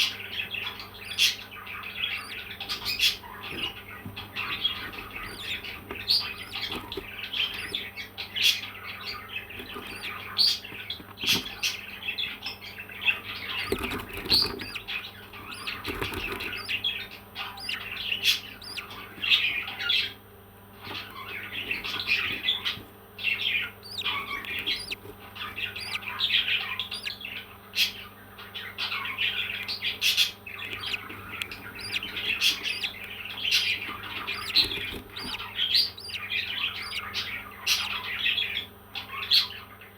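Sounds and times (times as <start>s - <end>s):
parrots chirping and squawking: 0.0s - 11.7s, 13.0s - 20.2s, 20.8s - 28.0s, 28.8s - 38.2s
sharp clicks: 13.6s - 14.8s, 15.5s - 16.8s, 18.6s - 18.9s, 23.8s - 25.2s, 25.8s - 26.0s, 26.8s - 27.1s, 30.7s - 36.2s.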